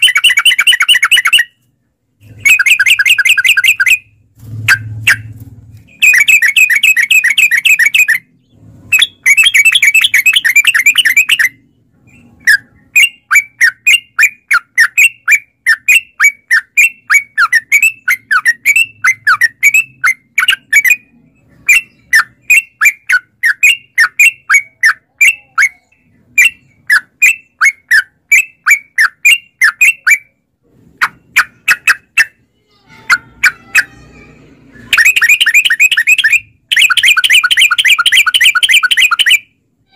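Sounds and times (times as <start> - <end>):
bird song rapid chatter: 0.0 - 34.0, 34.6 - 39.6
bird short repeated notes: 34.6 - 39.6.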